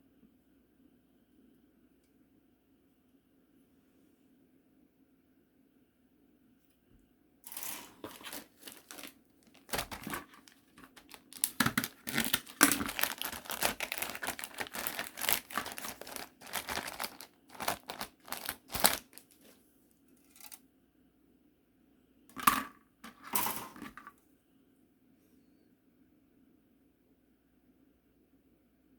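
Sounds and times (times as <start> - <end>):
plastic packaging crinkling: 7.5 - 19.6, 20.2 - 20.6.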